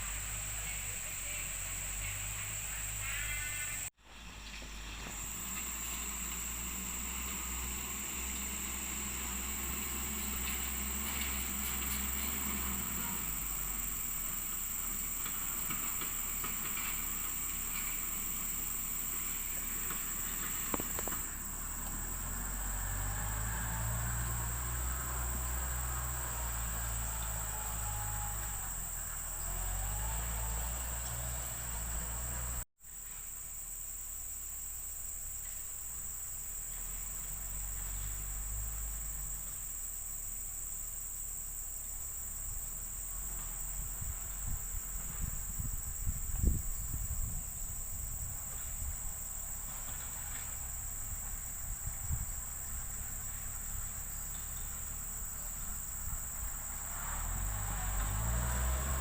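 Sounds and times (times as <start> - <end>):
insect chorus buzzing: 0.0 - 59.0.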